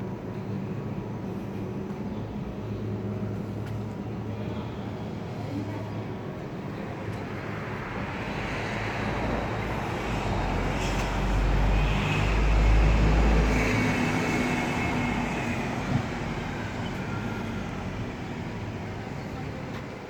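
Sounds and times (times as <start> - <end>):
vehicle passing by: 7.3 - 19.4.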